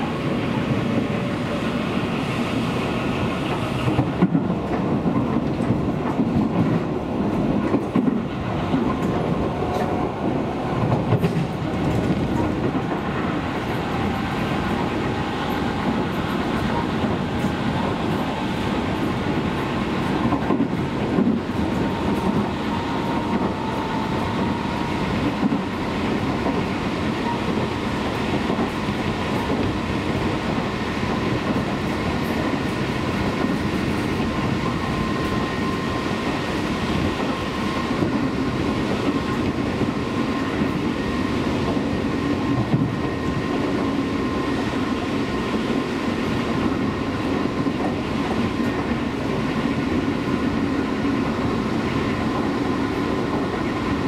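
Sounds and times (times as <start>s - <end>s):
train wheels rumbling on rail: 0.0s - 54.0s
wheels clickety-clack: 3.3s - 35.4s.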